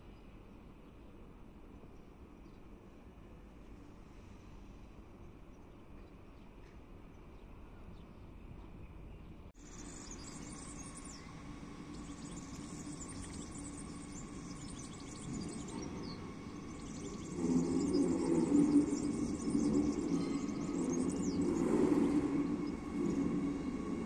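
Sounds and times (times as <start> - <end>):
train rumble: 0.0 - 24.0
birds chirping: 9.6 - 24.0
low hum: 9.6 - 24.0.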